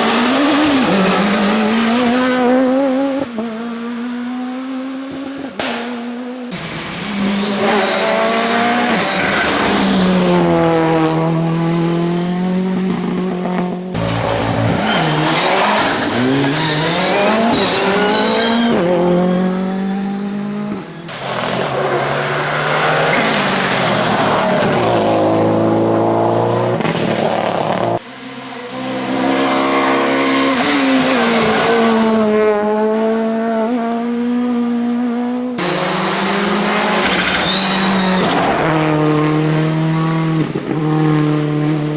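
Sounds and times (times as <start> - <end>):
rally car engines revving: 0.0 - 41.9.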